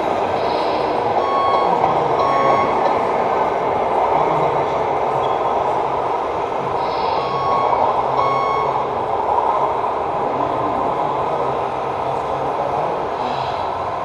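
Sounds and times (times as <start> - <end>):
reversing beeps: 1.2 - 3.0, 7.2 - 8.9.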